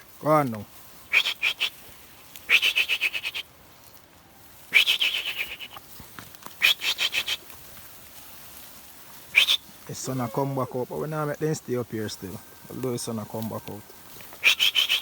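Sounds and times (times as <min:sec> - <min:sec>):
goat bleating: 0:09.9 - 0:11.0.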